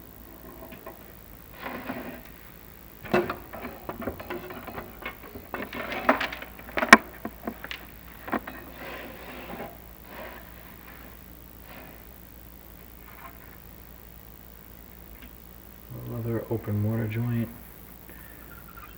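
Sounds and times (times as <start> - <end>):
camera cable scraping against flue tiles: 0.5 - 2.4, 3.4 - 12.2.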